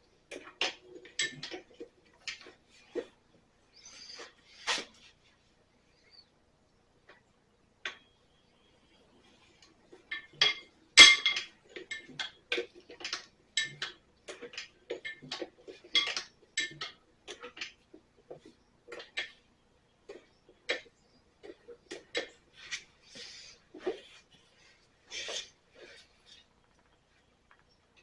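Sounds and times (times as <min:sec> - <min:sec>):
metal tools clinking: 0:10.0 - 0:17.6.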